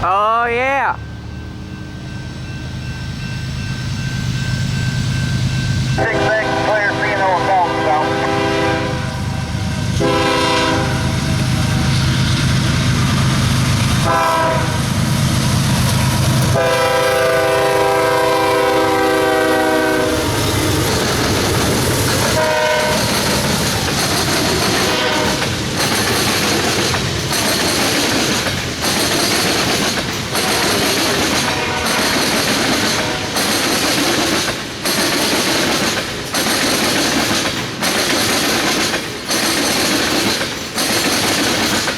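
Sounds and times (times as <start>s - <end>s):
train horn blasts: 6.0s - 12.0s, 14.0s - 15.0s, 16.5s - 20.4s, 22.2s - 23.2s, 24.7s - 25.5s, 31.4s - 33.4s
wheels clacking over rail joints: 15.7s - 41.9s.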